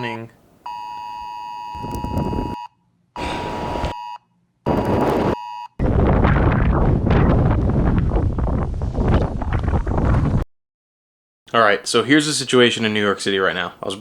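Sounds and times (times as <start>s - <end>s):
two-pitch emergency alert beep: 0.7s - 5.7s
gusty wind buffeting microphone: 1.8s - 2.6s, 4.7s - 10.4s.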